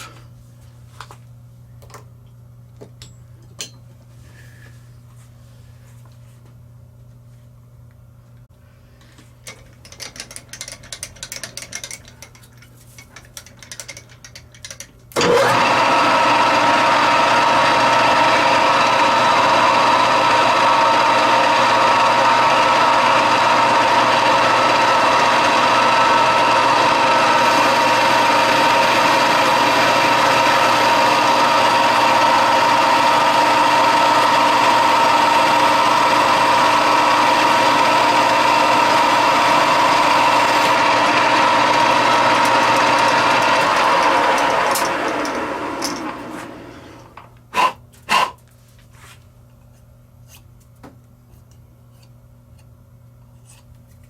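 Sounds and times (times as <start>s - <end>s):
handling clicks and rattles: 9.4s - 15.1s
machine motor humming: 15.2s - 47.3s.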